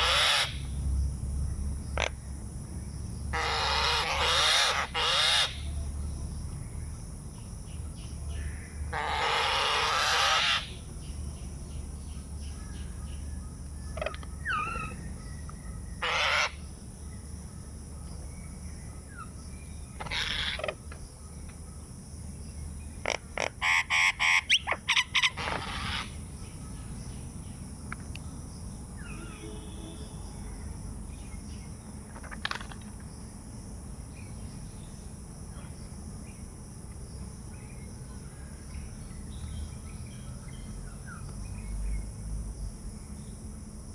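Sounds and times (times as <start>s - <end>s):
birds calling: 0.0s - 0.8s, 3.2s - 5.8s, 7.4s - 33.4s.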